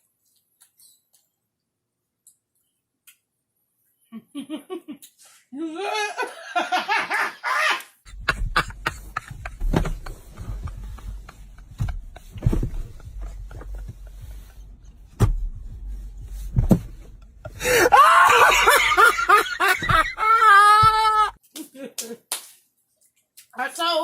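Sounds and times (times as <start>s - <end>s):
person laughing: 4.1s - 14.7s, 17.4s - 22.2s
low rumble: 8.1s - 17.7s.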